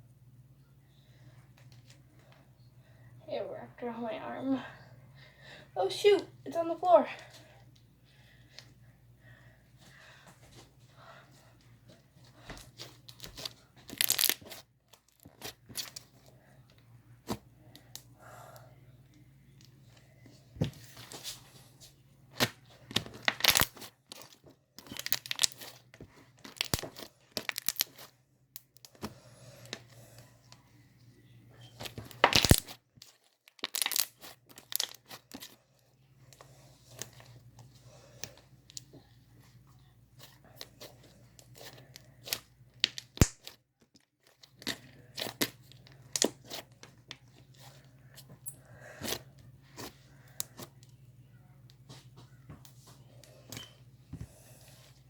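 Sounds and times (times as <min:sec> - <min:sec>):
slime crackling and popping: 0:13.2 - 0:16.0, 0:22.4 - 0:25.8, 0:26.4 - 0:28.9, 0:32.0 - 0:35.6, 0:41.4 - 0:43.6.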